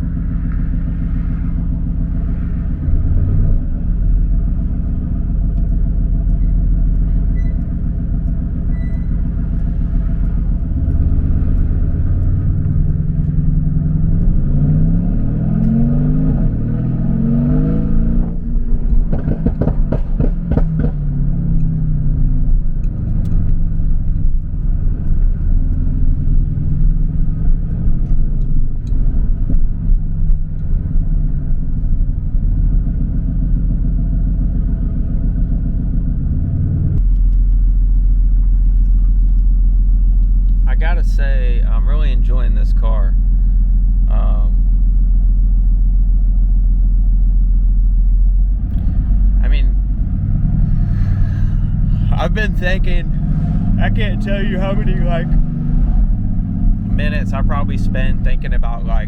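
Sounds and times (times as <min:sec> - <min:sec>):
car engine revving: 0:00.0 - 0:37.1, 0:48.4 - 0:59.0
exhaust crackles and pops: 0:00.0 - 0:59.0.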